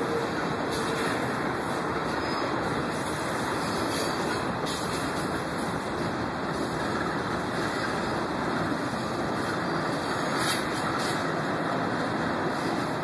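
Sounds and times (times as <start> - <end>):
diesel locomotives rumbling: 0.0 - 13.0.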